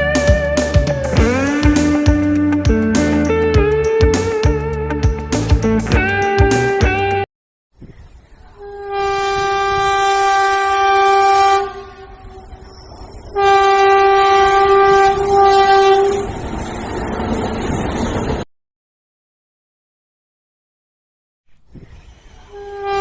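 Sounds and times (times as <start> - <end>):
running train rumble: 0.0 - 7.0, 8.6 - 18.4
train horn blasts: 8.6 - 12.7, 13.3 - 16.4, 22.5 - 23.0.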